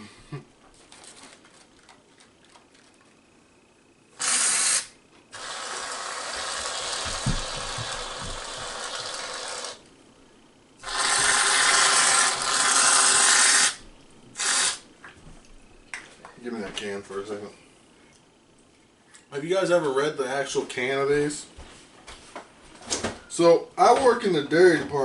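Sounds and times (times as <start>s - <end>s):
aerosol can hissing: 4.2s - 9.8s, 10.8s - 13.8s, 14.4s - 14.8s.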